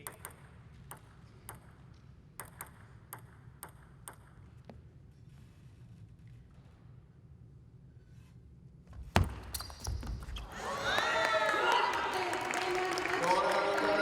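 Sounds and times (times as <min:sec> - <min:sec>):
table tennis ball clicking: 0:00.0 - 0:01.8, 0:02.4 - 0:04.4
low hall hum: 0:00.0 - 0:14.0.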